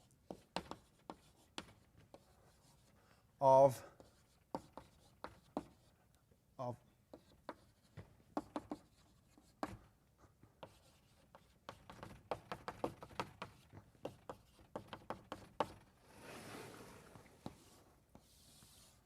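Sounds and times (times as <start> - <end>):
chalk tapping on blackboard: 0.0 - 2.9, 4.0 - 5.9, 7.1 - 9.8, 10.6 - 15.9, 17.4 - 19.0
chalk scraping on blackboard: 0.2 - 3.0, 4.0 - 5.9, 7.1 - 9.8, 10.6 - 19.0.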